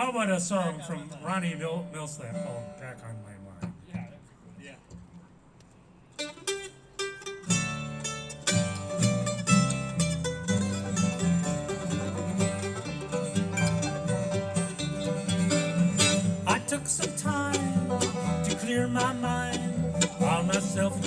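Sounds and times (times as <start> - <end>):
bluegrass band playing: 6.2 - 21.0.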